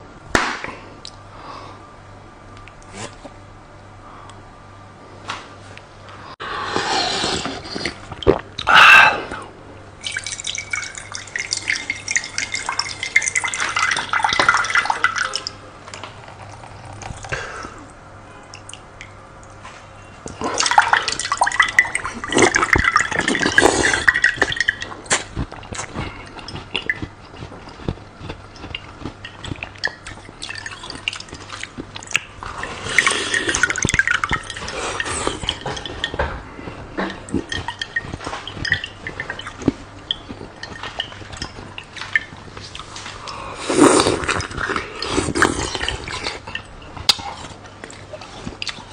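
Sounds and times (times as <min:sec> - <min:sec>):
water splashing and dripping: 0:10.0 - 0:15.6, 0:20.4 - 0:27.0, 0:28.5 - 0:43.3.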